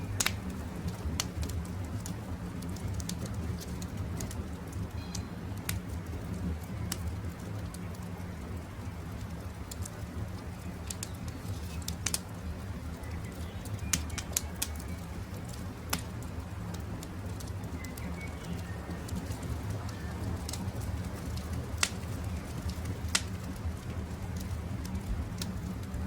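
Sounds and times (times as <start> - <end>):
campfire crackling and popping: 0.0 - 26.0
faint bird chirps: 17.7 - 19.0.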